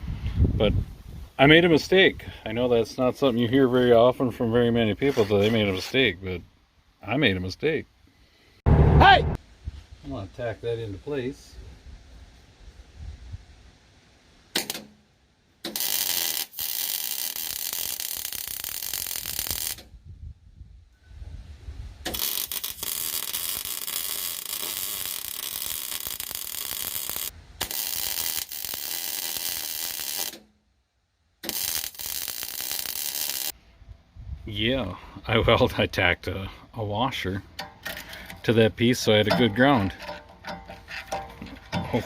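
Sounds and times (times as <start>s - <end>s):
arc welder crackling: 14.5s - 14.9s, 15.6s - 19.9s, 22.0s - 30.5s, 31.4s - 33.6s.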